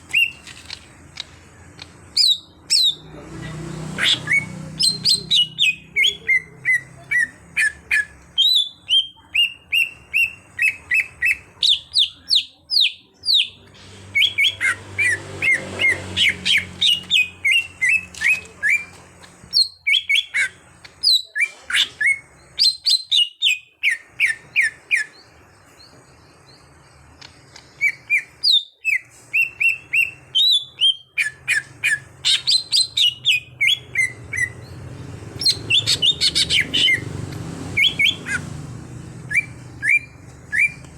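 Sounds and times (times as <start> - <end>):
bird singing whistled notes: 27.8 - 34.7, 37.7 - 38.4, 39.3 - 40.9.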